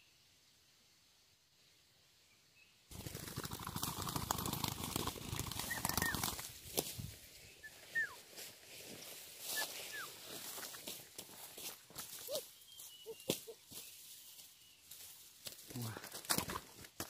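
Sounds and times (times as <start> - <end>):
bird wings flapping: 2.9 - 7.1
short high bird chirps: 12.2 - 14.0.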